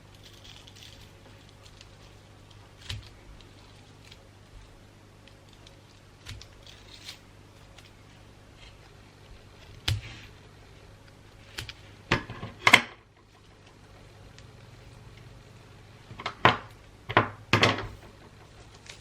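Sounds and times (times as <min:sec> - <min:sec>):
paper crinkling: 0:00.0 - 0:12.1, 0:17.9 - 0:19.0.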